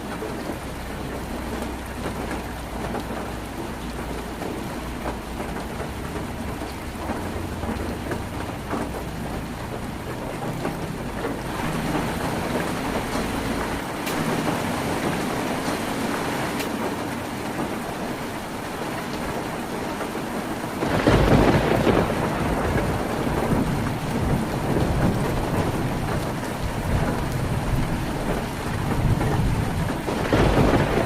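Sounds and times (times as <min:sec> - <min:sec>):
heavy rain on a tin roof: 0:00.0 - 0:31.0
thunder rumbling: 0:00.2 - 0:31.0.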